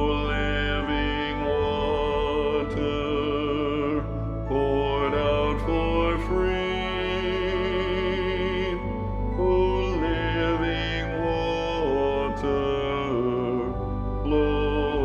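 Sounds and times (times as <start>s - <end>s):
choir singing with vibrato: 0.0s - 15.0s
sustained instrumental accompaniment: 0.0s - 15.0s.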